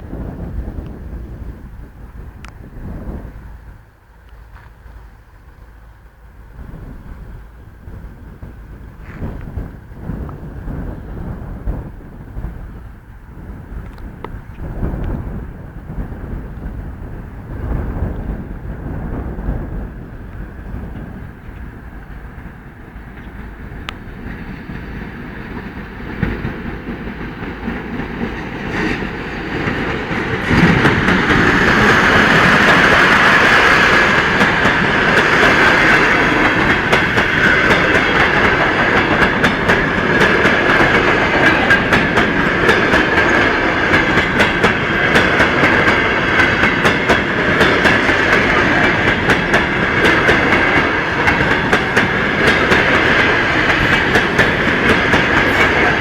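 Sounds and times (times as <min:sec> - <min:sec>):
electric locomotive approaching: 0:00.0 - 0:56.0
wheels clacking over rail joints: 0:20.8 - 0:56.0.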